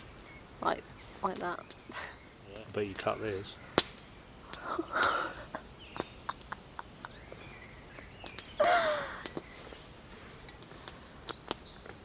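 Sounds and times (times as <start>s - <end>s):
campfire crackling: 0.0s - 12.0s
sharp pops: 1.2s - 3.1s, 3.7s - 5.2s, 5.9s - 6.6s, 7.3s - 9.5s, 10.4s - 12.0s.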